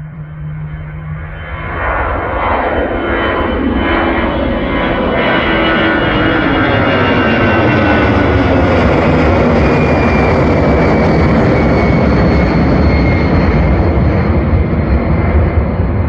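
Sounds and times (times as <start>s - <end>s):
airliner engines roaring: 0.0s - 16.0s.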